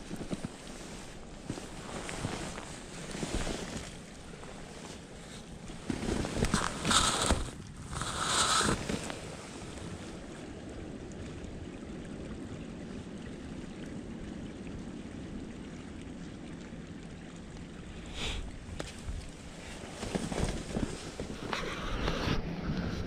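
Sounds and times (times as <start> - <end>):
rustle or step: 0.0 - 9.4, 18.2 - 23.0
stream rushing: 16.2 - 23.0.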